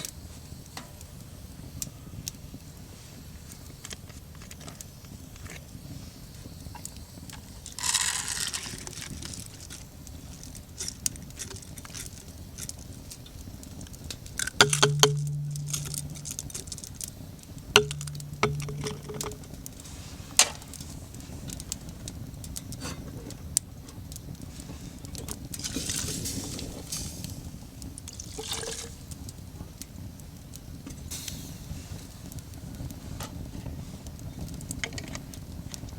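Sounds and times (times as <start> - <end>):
metal cookware clinking: 14.6 - 16.8, 17.8 - 19.5
low hum: 14.6 - 19.8.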